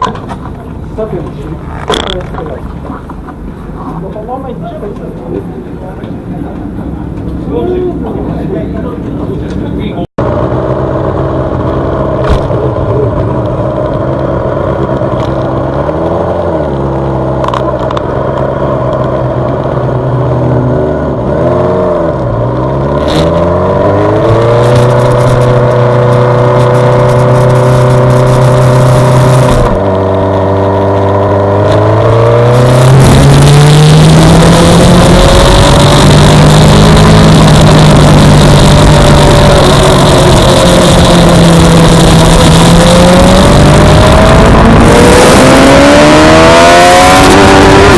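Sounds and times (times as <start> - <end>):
motorcycle engine revving: 10.2 - 47.9.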